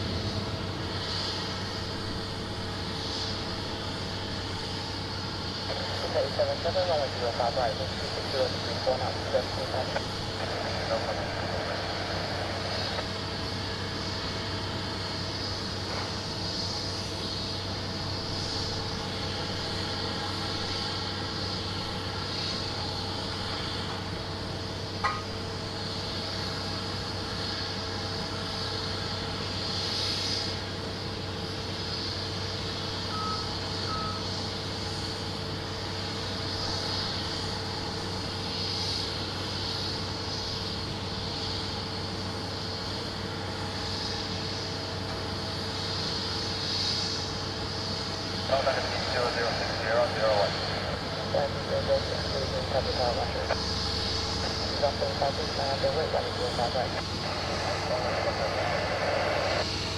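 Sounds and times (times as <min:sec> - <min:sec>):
aircraft and vehicle mechanical hum: 0:00.0 - 0:59.9
short high beeps: 0:33.1 - 0:34.2.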